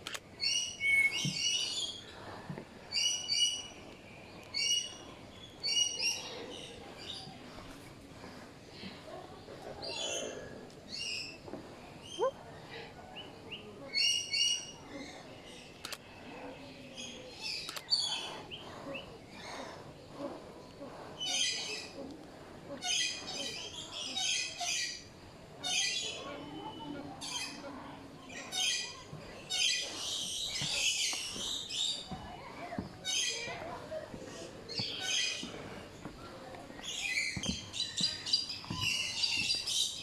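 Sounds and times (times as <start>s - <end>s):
birds chirping and squawking: 8.8s - 15.9s, 16.9s - 33.7s, 34.3s - 36.1s, 36.8s - 40.0s.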